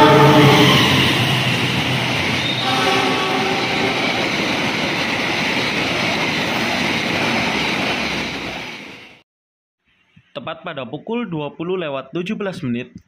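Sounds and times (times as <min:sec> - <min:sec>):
drawn-out tones: 0:00.0 - 0:08.9
train wheels rumbling on rail: 0:00.0 - 0:09.2.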